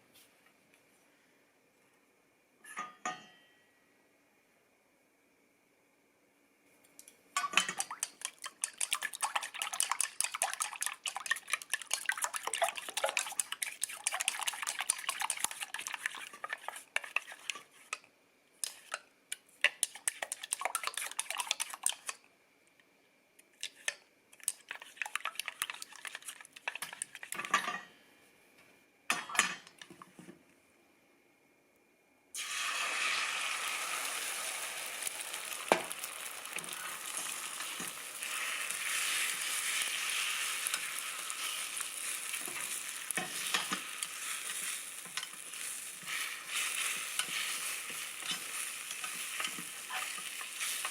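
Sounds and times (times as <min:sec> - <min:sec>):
utensil clicking against a bowl: 0:07.0 - 0:18.0.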